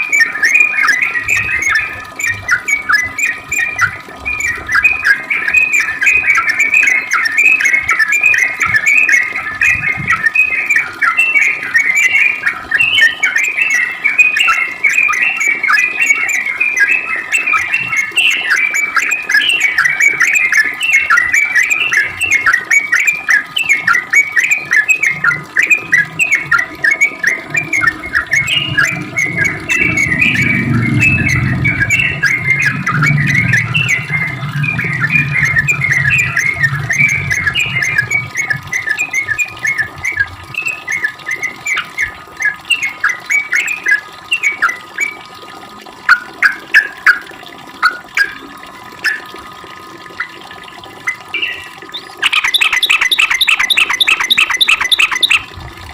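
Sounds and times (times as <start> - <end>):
bird chirping rapidly: 27.2 - 41.9, 51.4 - 55.5
low hum: 27.4 - 40.8.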